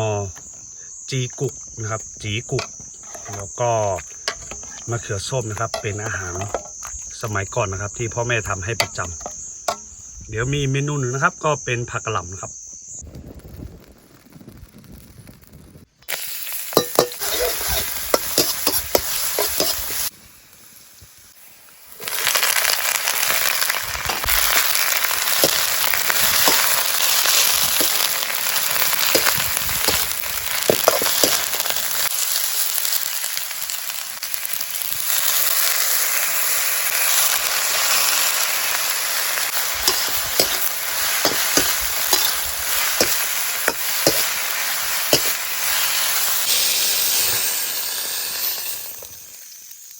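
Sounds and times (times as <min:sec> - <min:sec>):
spatula scraping a pan: 0:02.6 - 0:03.5, 0:04.2 - 0:04.9, 0:16.8 - 0:20.1, 0:24.1 - 0:31.8, 0:39.8 - 0:44.4, 0:45.0 - 0:46.3
cabbage sizzling in a pan: 0:13.2 - 0:49.9.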